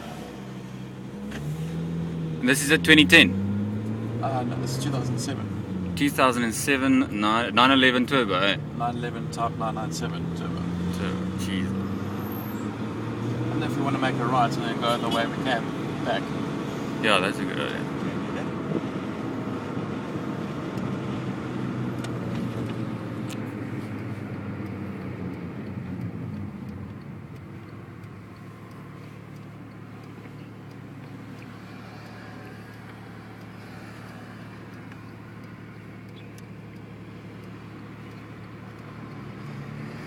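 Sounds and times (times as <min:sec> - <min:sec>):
sports car engine pulling: 0:00.0 - 0:40.0.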